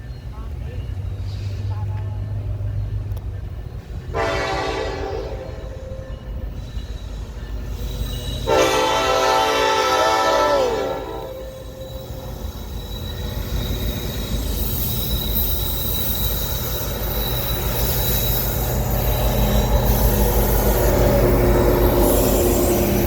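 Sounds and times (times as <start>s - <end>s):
diesel locomotives rumbling: 0.0s - 23.0s
faint thin wheel squeal: 5.6s - 9.2s, 11.0s - 23.0s.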